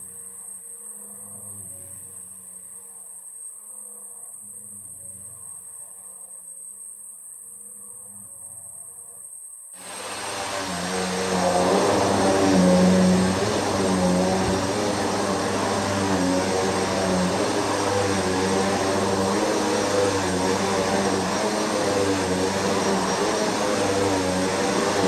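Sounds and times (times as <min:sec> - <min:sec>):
upright vacuum cleaner running: 0:09.8 - 0:25.0.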